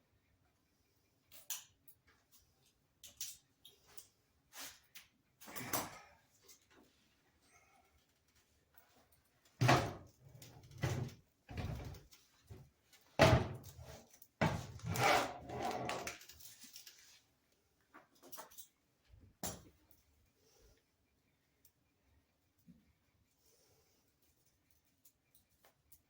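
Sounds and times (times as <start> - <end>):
handling rustling and scraping: 8.0 - 18.9.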